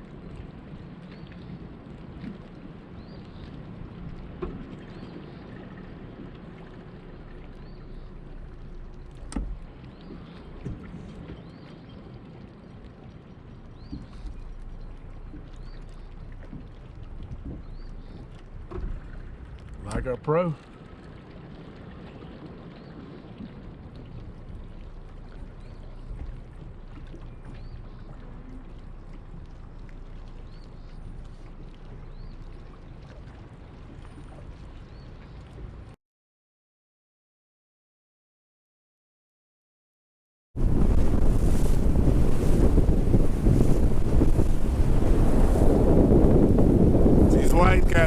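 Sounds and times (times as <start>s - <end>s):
water lapping: 0.0s - 36.0s, 40.6s - 48.0s
wind buffeting microphone: 40.6s - 48.0s
wind rushing: 40.6s - 48.0s.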